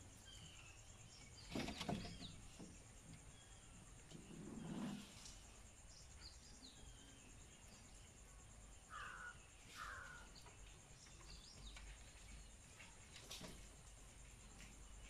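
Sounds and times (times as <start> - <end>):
harsh bird calls: 8.9 - 10.5.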